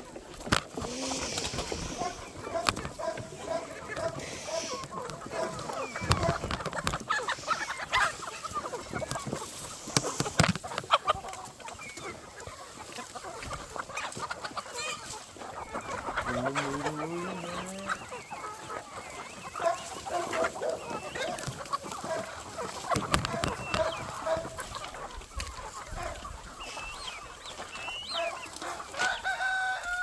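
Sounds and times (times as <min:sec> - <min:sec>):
chickens clucking: 0:00.0 - 0:30.0
low rising bird call: 0:16.3 - 0:18.1.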